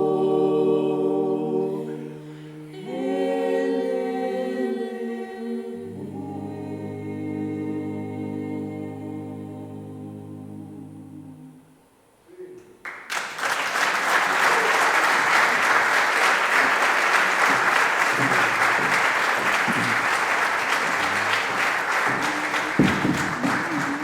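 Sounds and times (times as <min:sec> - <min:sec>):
audience applause: 0:12.8 - 0:24.0.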